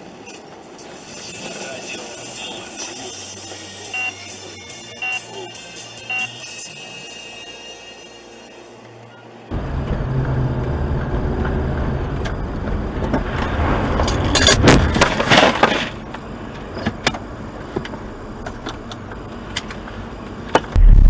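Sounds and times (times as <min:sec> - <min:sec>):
car engine and road noise: 0:08.2 - 0:21.0.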